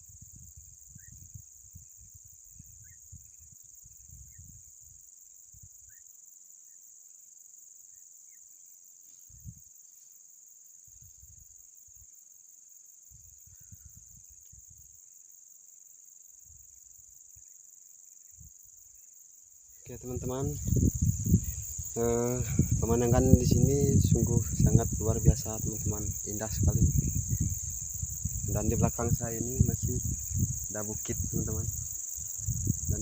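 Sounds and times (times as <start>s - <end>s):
wind buffeting microphone: 0.0s - 4.7s, 19.9s - 33.0s
crickets trilling: 0.0s - 33.0s.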